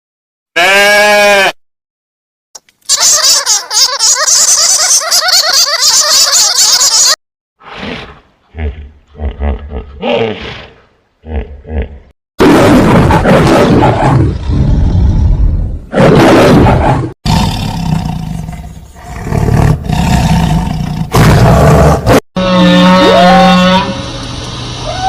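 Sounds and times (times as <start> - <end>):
large animal roaring: 7.6 - 23.9.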